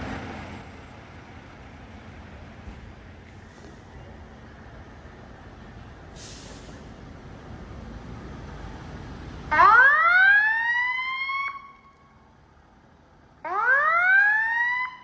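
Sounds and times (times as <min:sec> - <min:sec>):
fire engine siren wail: 0:09.5 - 0:11.6, 0:13.6 - 0:15.0.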